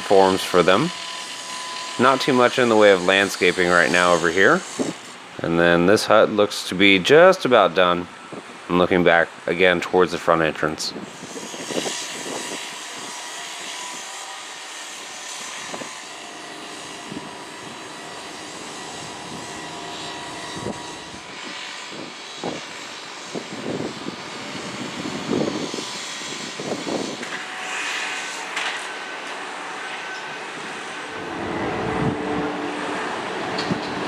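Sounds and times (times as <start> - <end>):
distant motor traffic hum: 28.6 - 34.0.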